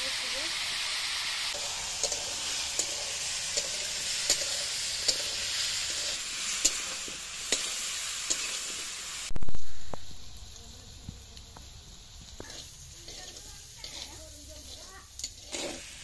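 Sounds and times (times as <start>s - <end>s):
food sizzling in hot oil: 0.0s - 16.0s
metal spatula scraping a pan: 1.5s - 8.9s, 12.3s - 16.0s.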